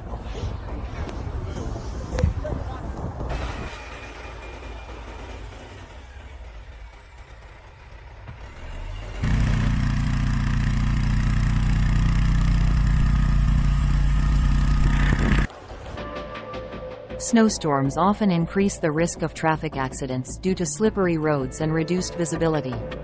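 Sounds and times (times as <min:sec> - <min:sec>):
vehicle engine running loudly: 0:04.4 - 0:15.5.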